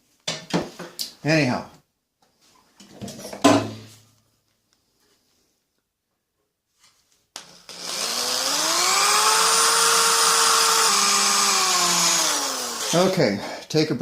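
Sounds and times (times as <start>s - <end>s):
electric drill running: 7.4s - 13.2s.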